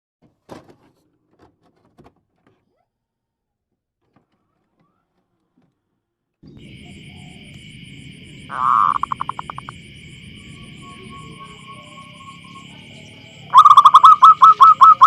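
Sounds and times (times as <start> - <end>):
outdoor background noise: 4.0 - 15.0.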